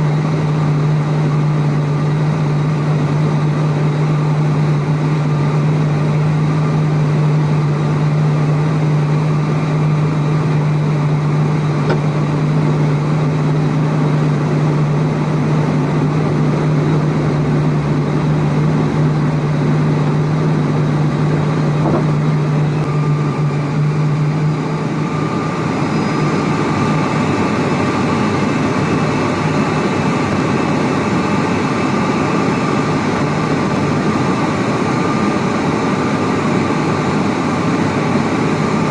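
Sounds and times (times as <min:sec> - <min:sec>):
engine and rollout rush: 0:00.0 - 0:38.9
low engine hum: 0:00.0 - 0:38.9
propeller drone: 0:00.0 - 0:38.9.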